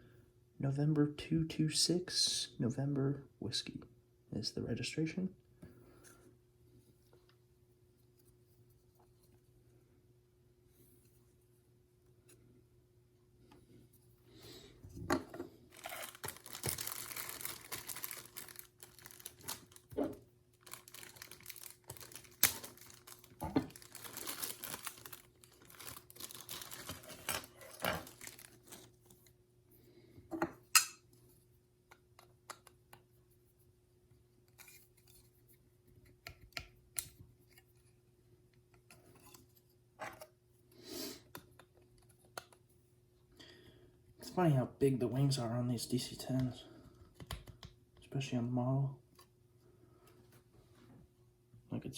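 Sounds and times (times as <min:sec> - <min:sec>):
plastic packaging crinkling: 0:15.7 - 0:29.1.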